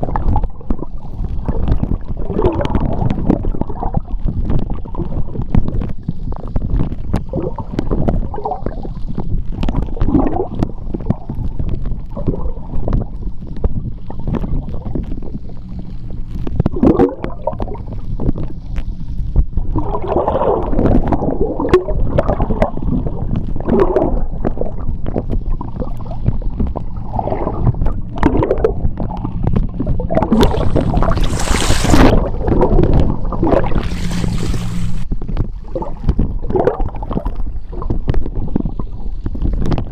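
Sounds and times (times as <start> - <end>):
steady low hum: 13.8 - 19.8, 23.4 - 35.2
underwater water churning: 19.8 - 37.4
hissing rush of bubbles: 30.1 - 35.1.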